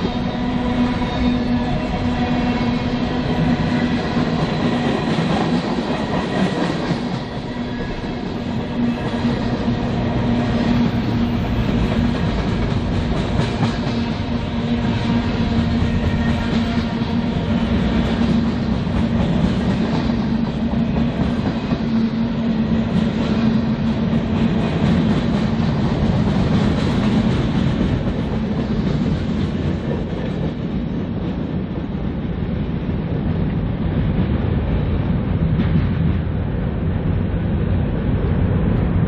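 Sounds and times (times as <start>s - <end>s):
freight train cars rolling past: 0.0s - 39.0s
wheel noise on rails: 0.0s - 39.0s.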